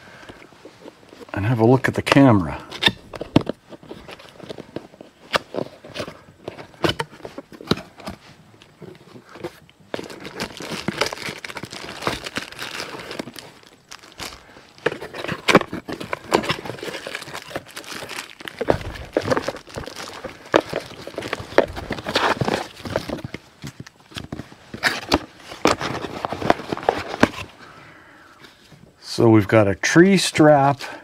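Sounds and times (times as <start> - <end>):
cardboard rustling: 0.6 - 27.6
plastic bags crinkling: 2.8 - 27.6.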